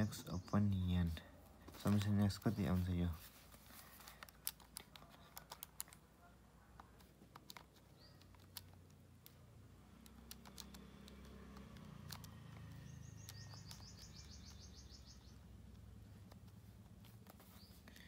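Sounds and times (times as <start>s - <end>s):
soft clicks: 6.8s - 14.1s
bird trilling: 12.9s - 15.4s.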